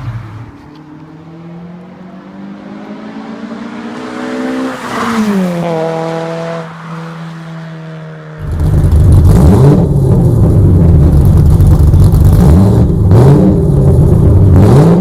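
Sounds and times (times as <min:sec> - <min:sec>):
car engine and exhaust droning: 0:05.5 - 0:15.0.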